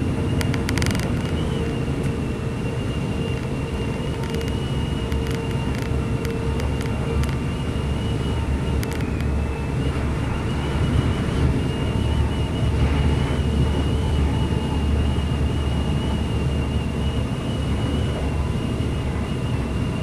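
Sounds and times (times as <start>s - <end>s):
high whine: 0.0s - 20.0s
train engine and wheels rumbling: 0.0s - 20.0s.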